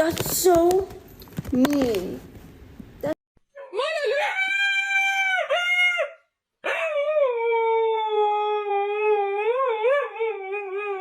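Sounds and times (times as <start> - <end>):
dog howling: 3.6 - 11.0.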